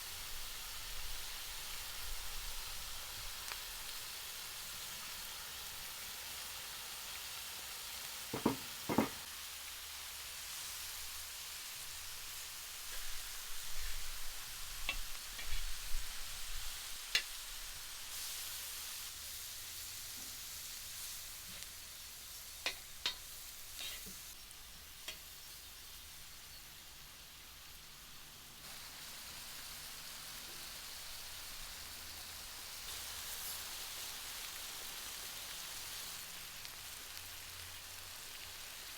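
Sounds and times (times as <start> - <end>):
food sizzling as it fries: 0.0 - 38.9
cooking utensil clicks and knocks: 8.3 - 9.2.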